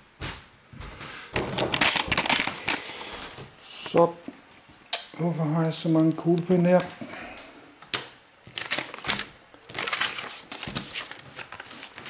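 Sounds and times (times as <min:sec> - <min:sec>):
rustling and crinkling: 0:00.2 - 0:12.0
small objects clattering: 0:01.4 - 0:04.1.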